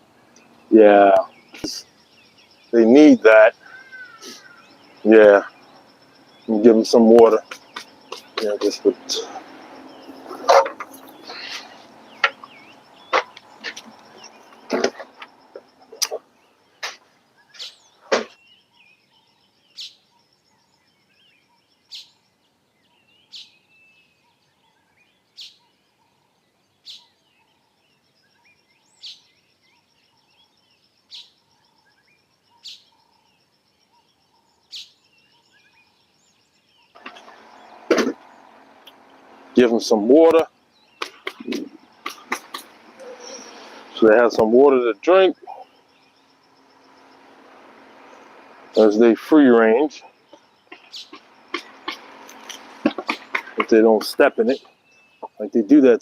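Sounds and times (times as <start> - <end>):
birds chirping: 0.0 - 56.0
haze of noise: 2.6 - 17.0, 37.0 - 54.6.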